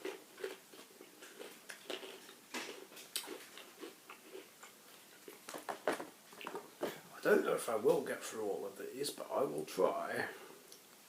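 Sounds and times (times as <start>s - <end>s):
chewing crunchy crisps: 0.0s - 7.0s.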